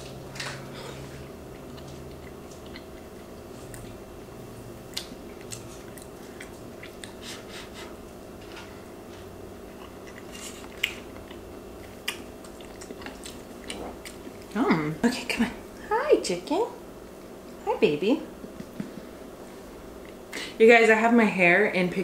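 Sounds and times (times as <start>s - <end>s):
steady low hum: 0.0s - 22.0s
chewing mouth sounds: 0.9s - 4.1s, 4.8s - 8.0s, 9.7s - 14.6s.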